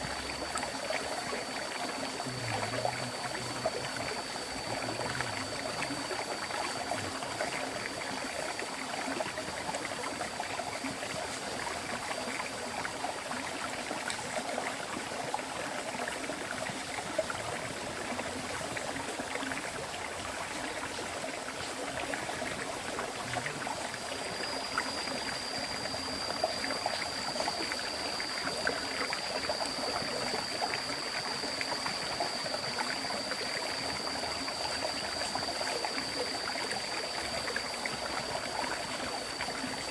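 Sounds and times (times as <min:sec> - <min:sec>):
high steady whine: 0:00.0 - 0:15.4, 0:16.2 - 0:39.9
river water flowing: 0:18.8 - 0:39.9.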